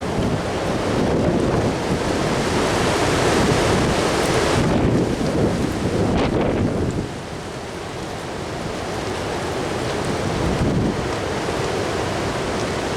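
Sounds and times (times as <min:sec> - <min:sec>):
wind buffeting microphone: 0:00.0 - 0:07.2, 0:10.0 - 0:11.4.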